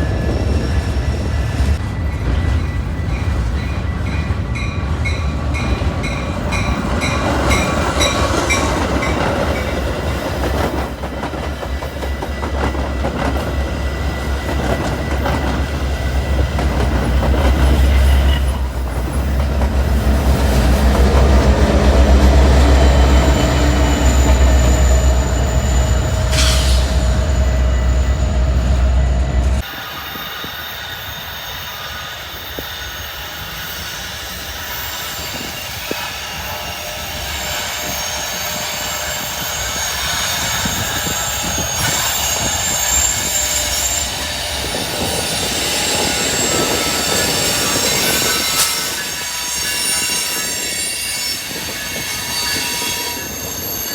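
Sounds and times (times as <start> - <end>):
diesel locomotive engine droning: 0.0 - 53.9
train wheels squealing: 0.0 - 53.9.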